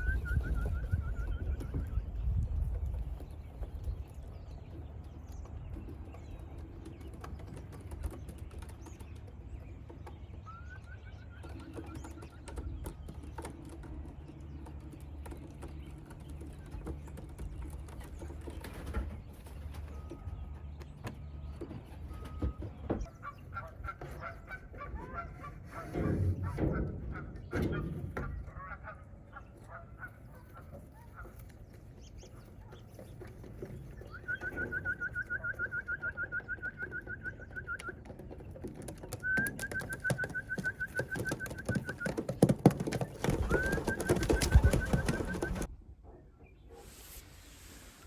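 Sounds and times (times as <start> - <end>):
wind rumble on microphone: 0.0 - 8.9, 43.3 - 46.0
pigeons calling: 0.0 - 45.7
wing flutters and clicks: 30.4 - 45.7.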